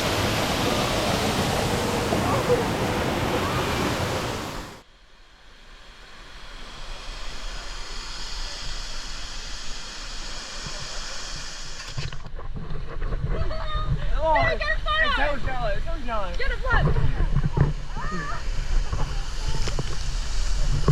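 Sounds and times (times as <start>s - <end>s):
waterfall roaring: 0.0s - 4.8s
faint hiss of rushing water: 0.0s - 12.3s, 17.4s - 20.9s.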